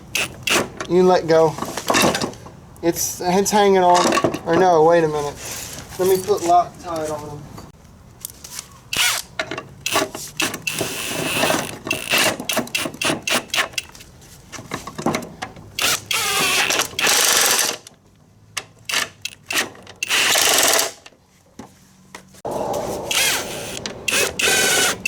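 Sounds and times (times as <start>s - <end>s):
power drill driving bolts: 0.0s - 0.9s, 8.9s - 14.0s, 15.8s - 17.8s, 18.9s - 21.0s, 23.1s - 25.0s.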